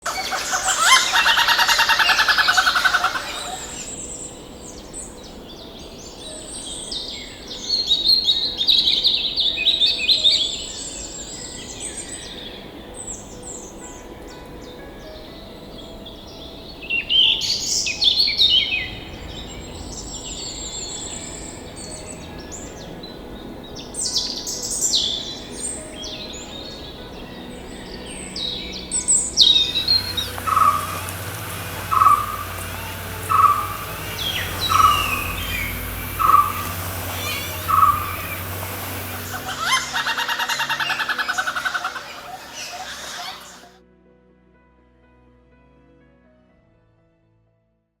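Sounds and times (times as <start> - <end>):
birds squealing calls: 0.0 - 4.3, 27.6 - 43.8.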